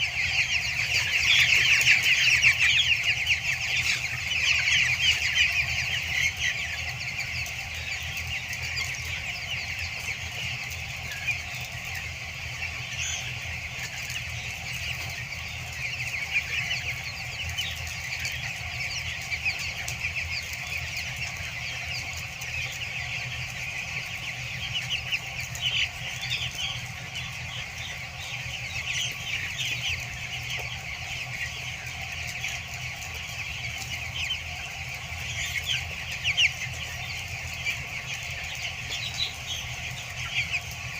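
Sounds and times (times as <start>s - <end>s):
chicks peeping: 0.0s - 40.9s.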